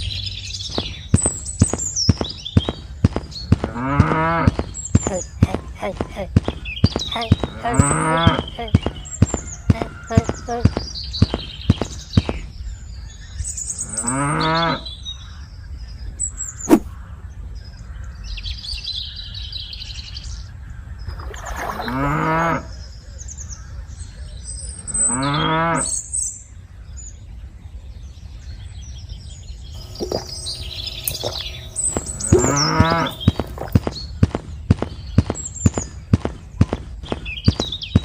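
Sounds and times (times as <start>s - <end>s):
birds chirping: 0.0s - 26.0s, 28.5s - 38.0s
cattle mooing: 3.7s - 4.6s, 7.5s - 8.7s, 13.9s - 14.9s, 21.8s - 22.7s, 29.8s - 33.8s.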